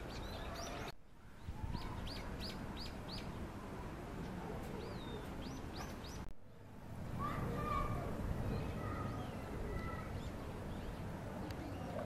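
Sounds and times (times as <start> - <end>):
small songbird chirping: 0.0 - 3.4, 4.2 - 7.2.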